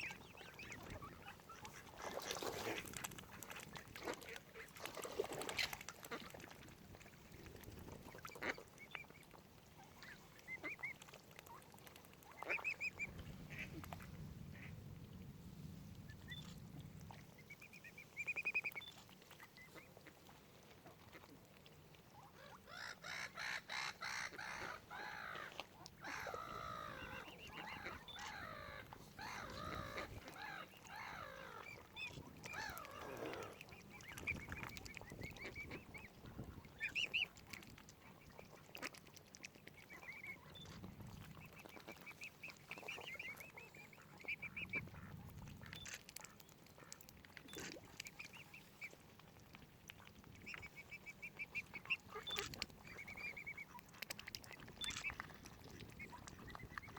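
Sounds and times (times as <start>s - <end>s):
waterfowl calling: 12.4s - 13.9s, 22.4s - 37.3s.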